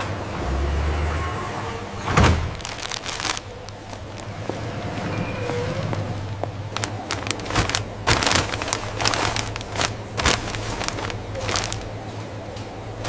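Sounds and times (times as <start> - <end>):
steady low hum: 1.5 - 13.0
crackling and crinkling clicks: 2.4 - 12.7.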